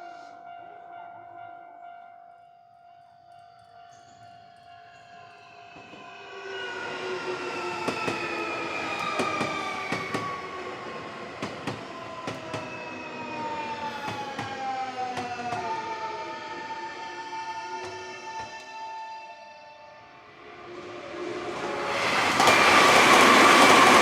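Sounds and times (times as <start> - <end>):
train rumble: 5.3 - 17.2, 20.4 - 24.0.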